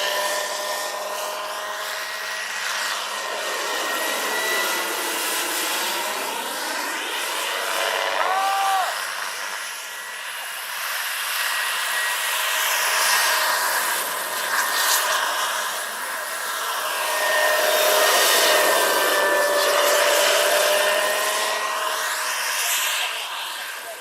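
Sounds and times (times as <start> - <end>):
model airplane motor whine: 0.0 - 24.0.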